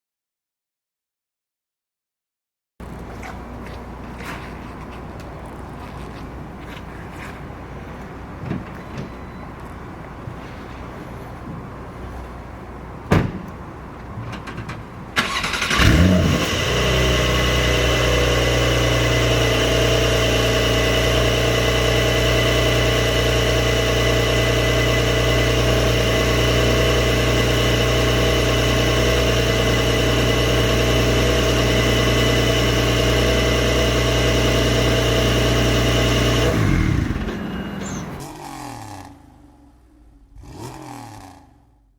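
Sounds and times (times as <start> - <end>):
car engine idling: 14.9 - 40.9.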